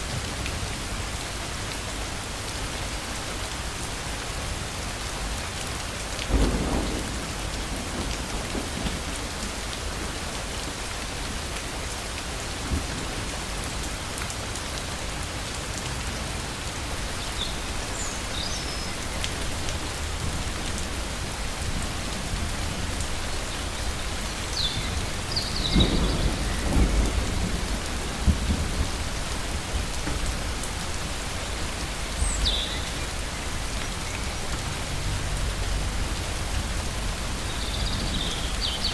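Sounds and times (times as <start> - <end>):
torrential rain: 0.0 - 38.9
thunder rumbling: 6.3 - 9.7, 19.0 - 32.0.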